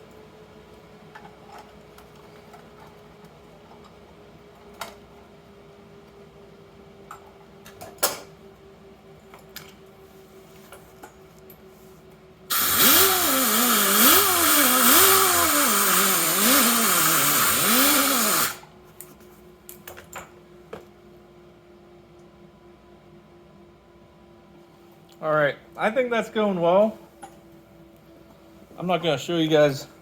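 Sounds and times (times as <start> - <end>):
welding arc: 12.5 - 18.6.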